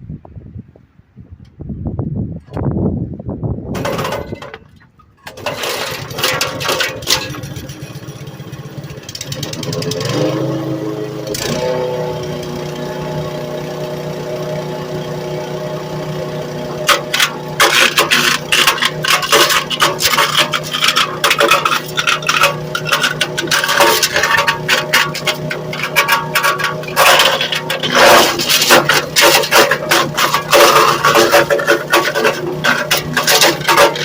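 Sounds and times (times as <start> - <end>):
wood chipper running: 3.7 - 34.0
wood cracking in chipper: 3.8 - 10.7, 16.6 - 34.0.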